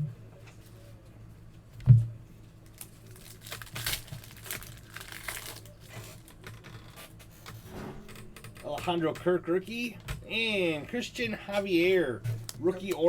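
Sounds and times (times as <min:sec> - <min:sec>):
card pack wrappers crinkling: 0:02.6 - 0:06.5
thump: 0:07.6 - 0:08.2.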